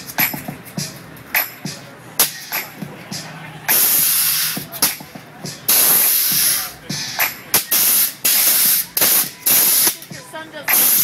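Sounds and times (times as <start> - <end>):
compressed air hissing bursts: 3.7 - 4.6, 5.7 - 6.7, 7.6 - 10.0.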